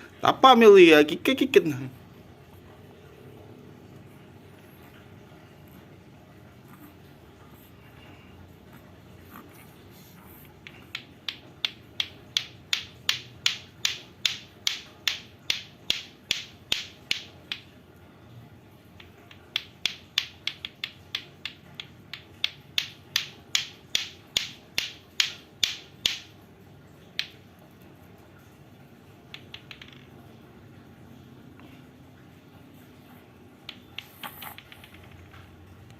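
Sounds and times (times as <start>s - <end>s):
clacker toy balls clacking: 10.6s - 17.8s, 18.9s - 26.4s, 27.1s - 27.6s, 29.2s - 30.4s, 33.6s - 35.7s.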